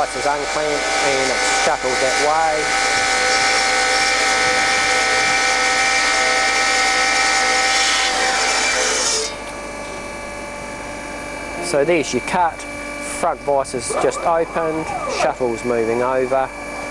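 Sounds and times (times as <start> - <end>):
bandsaw blade cutting wood: 0.0 - 9.4, 13.9 - 15.6
bandsaw running whine: 0.0 - 16.9.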